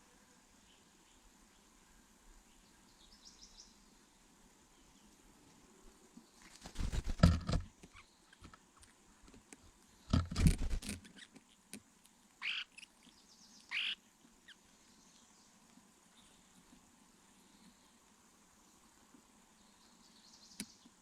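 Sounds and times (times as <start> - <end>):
rustling and knocking: 6.8 - 7.8, 10.1 - 11.1
short high bird calls: 12.4 - 12.9, 13.6 - 14.6.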